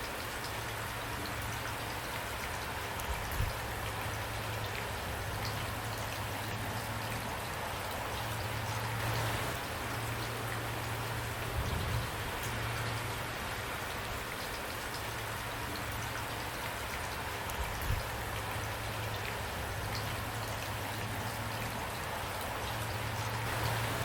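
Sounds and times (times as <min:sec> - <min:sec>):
raindrops ticking: 0:00.0 - 0:24.0
steady rain hiss: 0:00.0 - 0:24.0.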